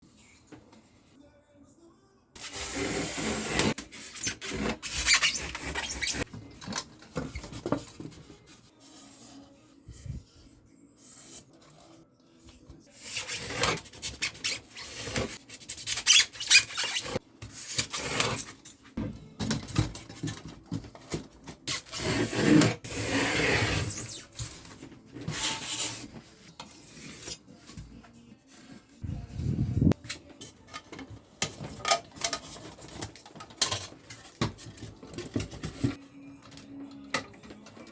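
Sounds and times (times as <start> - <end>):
polystyrene foam scraping: 2.4 - 6.3.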